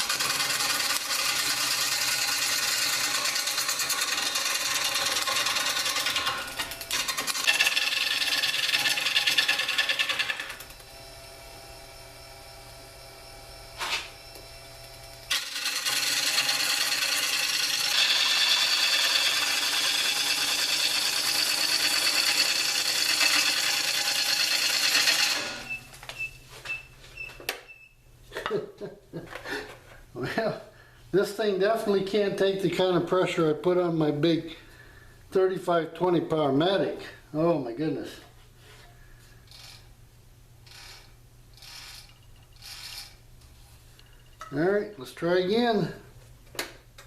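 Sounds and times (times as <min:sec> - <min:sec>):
lathe gouge cutting wood: 0:00.0 - 0:11.0, 0:15.2 - 0:25.7
lathe motor humming: 0:00.0 - 0:25.7.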